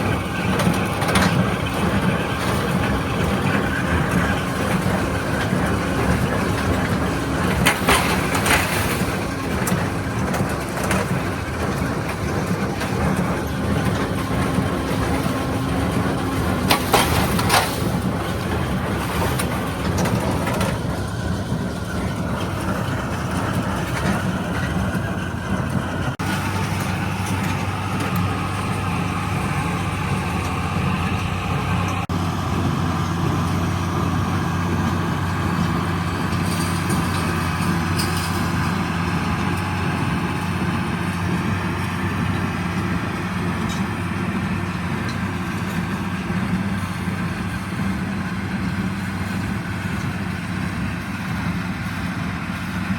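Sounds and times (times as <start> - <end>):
diesel tractor engine running: 0.0 - 52.9.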